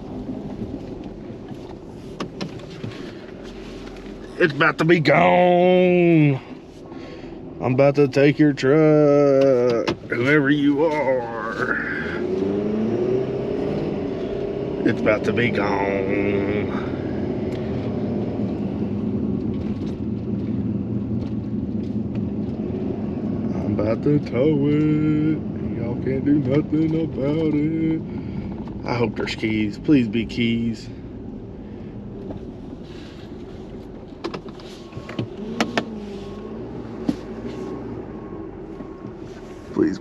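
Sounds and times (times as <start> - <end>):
truck engine hum from cab: 0.0 - 40.0
sharp clicks and knocks: 34.2 - 36.0.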